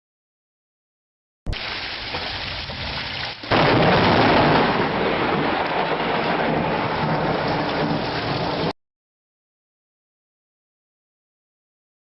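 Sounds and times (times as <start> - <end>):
storm roar: 1.5 - 8.8.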